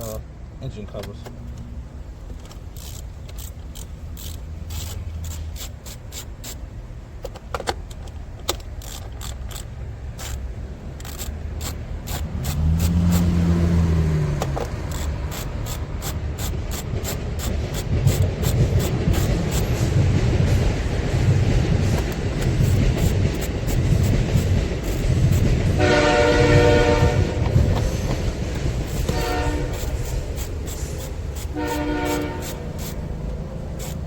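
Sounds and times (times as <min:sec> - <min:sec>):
socket ratchet clicking: 0:01.5 - 0:13.5, 0:14.4 - 0:25.8, 0:27.3 - 0:34.0
tools and parts scraping: 0:02.2 - 0:13.6, 0:14.4 - 0:34.0.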